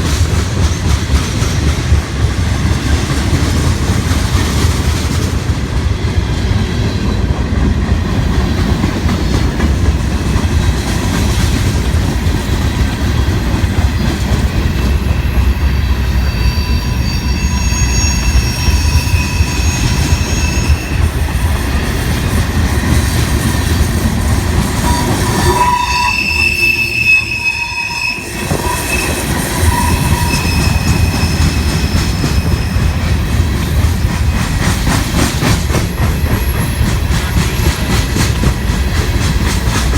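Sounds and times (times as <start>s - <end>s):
freight train cars rumbling: 0.0s - 39.9s
high wheel squeal: 13.2s - 22.9s, 24.7s - 33.3s.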